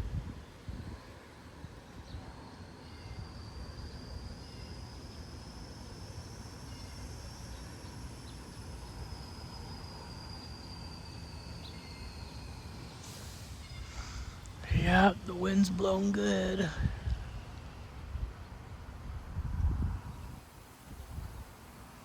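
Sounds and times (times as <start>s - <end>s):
wind buffeting microphone: 0.0s - 1.1s, 16.8s - 21.7s
high insect buzz: 2.8s - 15.8s.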